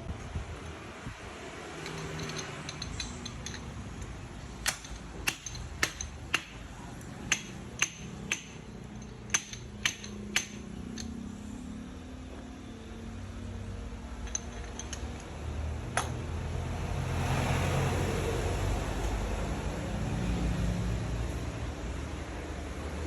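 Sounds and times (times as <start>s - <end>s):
hammer tapping metal: 1.8s - 11.2s.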